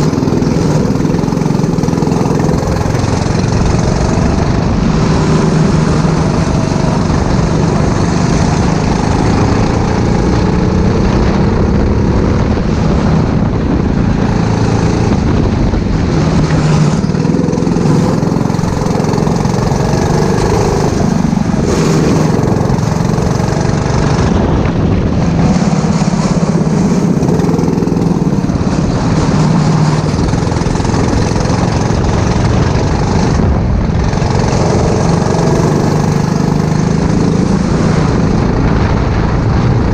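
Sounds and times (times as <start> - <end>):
go-kart engine racing: 0.0 - 39.9.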